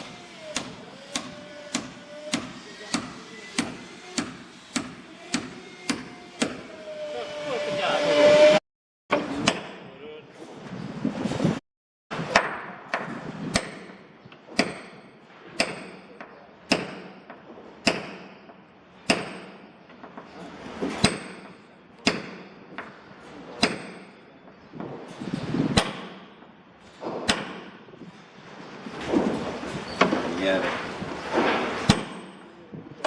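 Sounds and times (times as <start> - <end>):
hammer striking timber: 0.0 - 6.7, 9.1 - 9.8, 12.3 - 19.7, 20.8 - 22.9, 23.6 - 24.2, 25.8 - 26.3, 27.1 - 27.8, 31.9 - 32.5.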